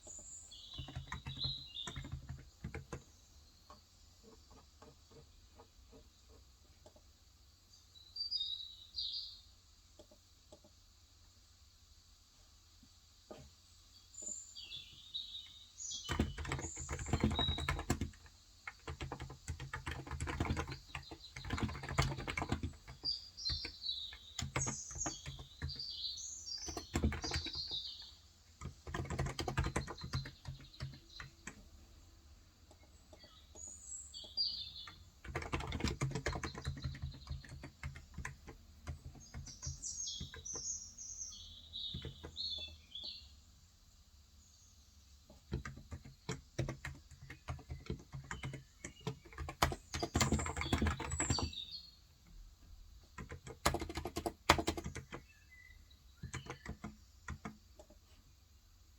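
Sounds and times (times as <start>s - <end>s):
small birds chirping: 0.0s - 10.8s, 12.8s - 58.9s
keyboard typing: 0.5s - 3.2s, 16.0s - 25.9s, 26.6s - 27.9s, 28.6s - 31.8s, 34.7s - 40.6s, 41.9s - 42.4s, 45.3s - 51.6s, 53.0s - 55.3s, 56.2s - 58.0s.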